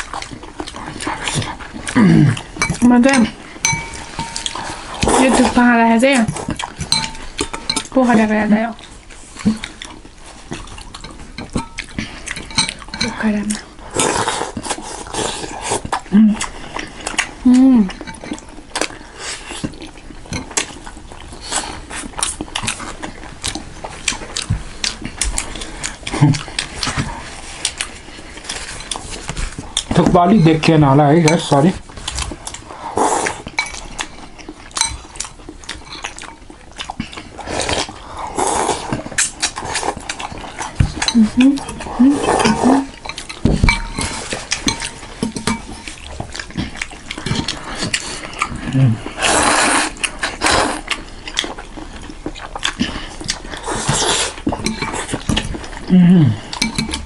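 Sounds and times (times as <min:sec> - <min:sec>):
wet chewing and mouth smacks: 0:00.0 - 0:57.0
cutlery clinking against a bowl: 0:02.6 - 0:05.5, 0:06.2 - 0:08.0, 0:10.6 - 0:13.2, 0:17.9 - 0:18.9, 0:20.3 - 0:20.8, 0:33.4 - 0:36.5, 0:38.9 - 0:41.8, 0:42.4 - 0:46.4, 0:53.8 - 0:55.6, 0:56.5 - 0:57.0.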